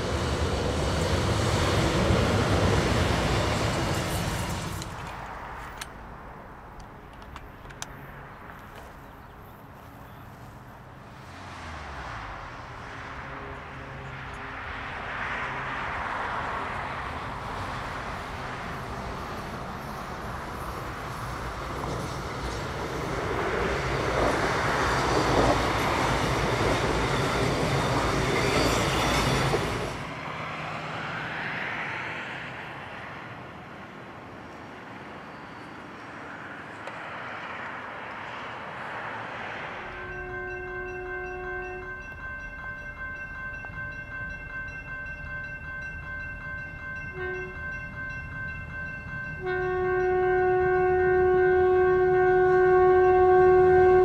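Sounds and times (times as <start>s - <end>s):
train wheels rumbling on rails: 0.0s - 5.9s, 11.6s - 30.3s
diesel train engine: 0.0s - 37.1s, 38.0s - 54.0s.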